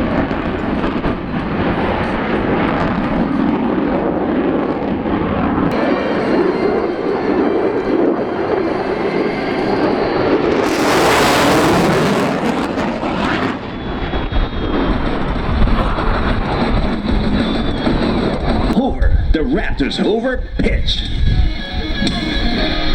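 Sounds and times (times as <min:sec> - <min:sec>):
jet engine deep rumble: 0:00.0 - 0:22.9
jet engine rushing hiss: 0:05.7 - 0:18.8.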